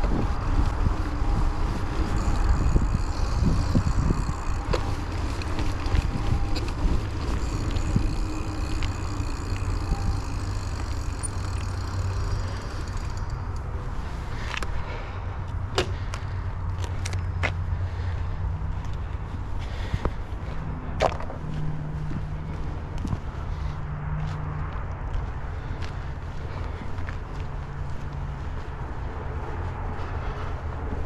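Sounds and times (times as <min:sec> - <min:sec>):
bike clicks and rattles: 0:00.0 - 0:20.2
tyres and wind rumble: 0:00.0 - 0:31.0.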